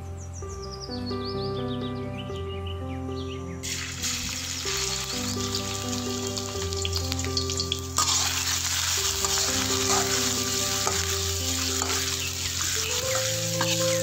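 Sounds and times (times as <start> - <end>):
background music: 0.0 - 14.0
aromatics sizzling in hot oil: 3.6 - 14.0
metal spatula scraping wok: 7.4 - 14.0.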